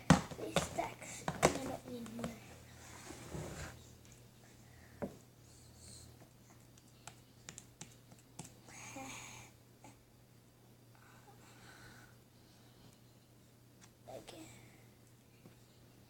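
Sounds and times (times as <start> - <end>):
faint clicks and taps of containers: 0.0 - 2.5, 6.2 - 8.7.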